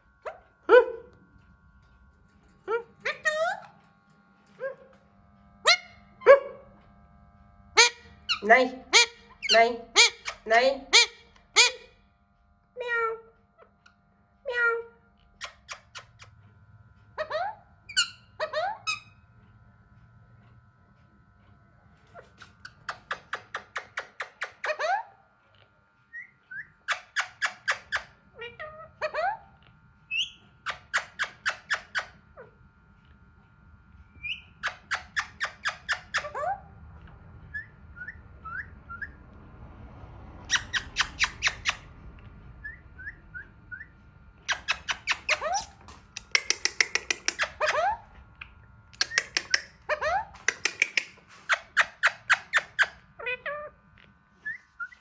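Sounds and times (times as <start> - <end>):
parakeet harsh calls: 5.6 - 6.1, 7.8 - 12.0, 17.2 - 19.2, 34.2 - 36.6, 40.4 - 41.9, 44.5 - 48.1, 49.0 - 53.8
parakeet soft chirps: 40.5 - 41.9, 44.5 - 48.0.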